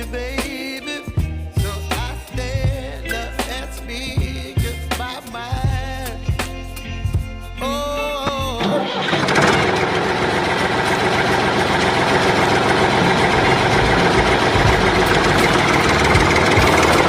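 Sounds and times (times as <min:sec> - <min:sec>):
tractor engine idling: 0:08.3 - 0:17.0.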